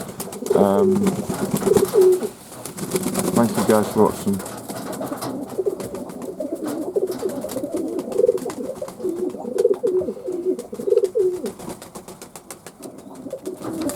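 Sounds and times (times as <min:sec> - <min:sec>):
pigeons cooing: 0:00.0 - 0:13.9.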